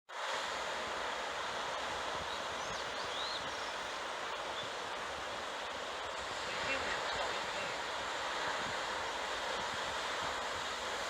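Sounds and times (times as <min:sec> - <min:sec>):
heavy ocean surf: 0:00.1 - 0:11.0
wind: 0:00.1 - 0:11.0
faint bird chirps: 0:02.3 - 0:03.9.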